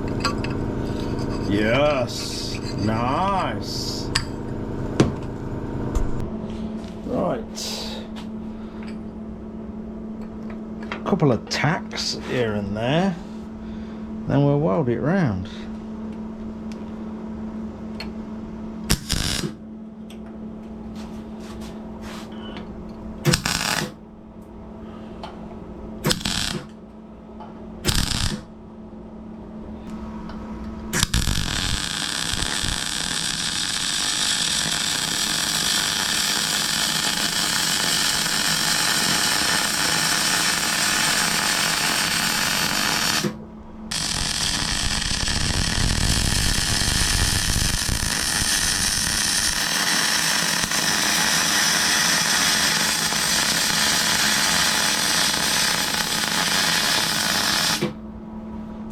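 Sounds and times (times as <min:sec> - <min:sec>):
welder steady hum: 0:00.0 - 0:28.6, 0:29.3 - 0:58.1
welding crackling hiss: 0:18.9 - 0:19.6, 0:23.3 - 0:24.0, 0:26.0 - 0:26.7, 0:27.9 - 0:28.5, 0:31.0 - 0:58.0.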